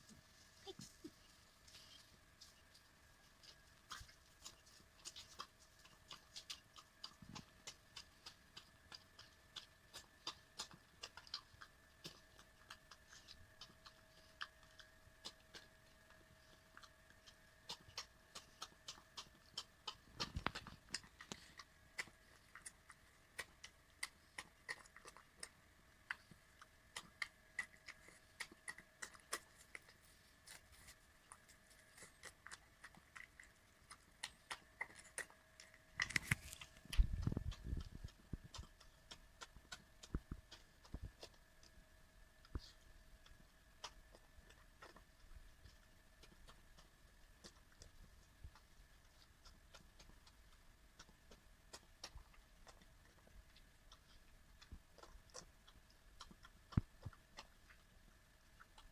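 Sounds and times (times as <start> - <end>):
dog eating from a bowl: 0.0 - 41.8, 42.4 - 58.9
faint steady hum: 0.0 - 58.9.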